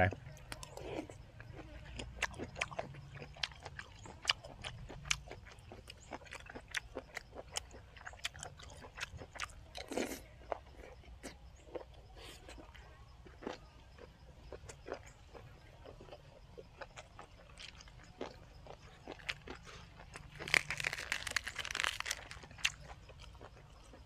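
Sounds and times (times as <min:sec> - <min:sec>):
crisp chewing crunches: 0:00.1 - 0:24.0.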